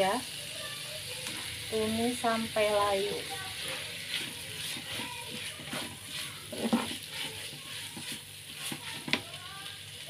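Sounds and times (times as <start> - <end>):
chicken sizzling in pan: 0.0 - 10.0
utensil scraping and knocking pan: 3.6 - 9.3.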